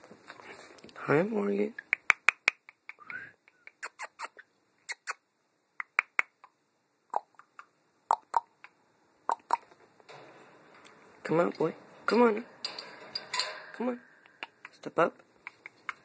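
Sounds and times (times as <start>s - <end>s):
sharp clicks and taps: 14.2s - 16.0s.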